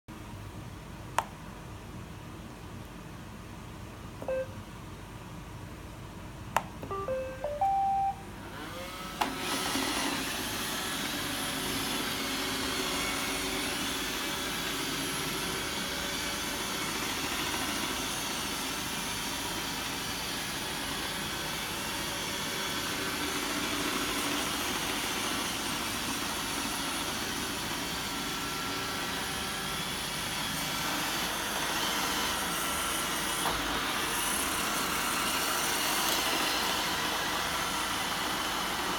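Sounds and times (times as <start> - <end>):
rising electronic beeps: 4.2 - 4.6, 6.8 - 8.3.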